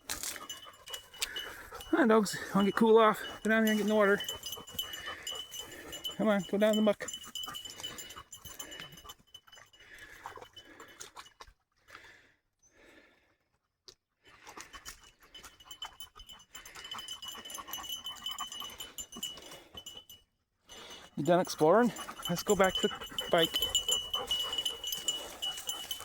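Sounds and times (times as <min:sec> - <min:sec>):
dogs panting: 0:00.0 - 0:11.3, 0:14.3 - 0:26.0
dogs rustling in brush: 0:21.8 - 0:26.0.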